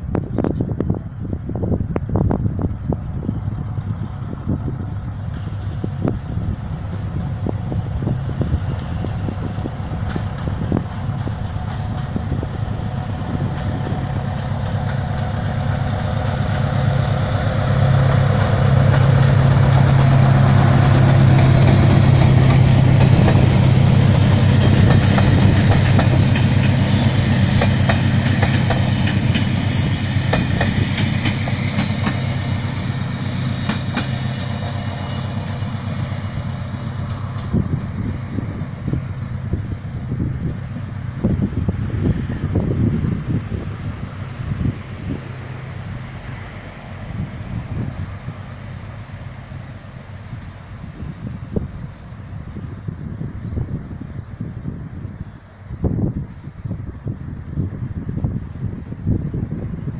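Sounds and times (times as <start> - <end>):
diesel locomotive engine drone: 0.0 - 59.9
train wheels clicking over rail joints: 8.2 - 39.3.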